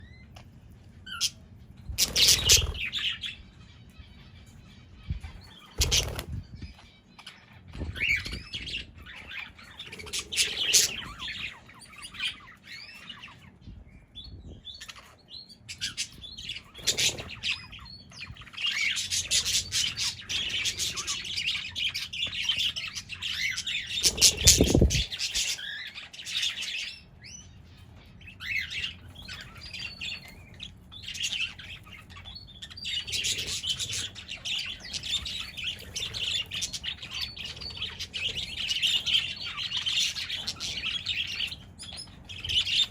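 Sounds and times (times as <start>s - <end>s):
parrots chirping and chattering: 0.0s - 42.9s.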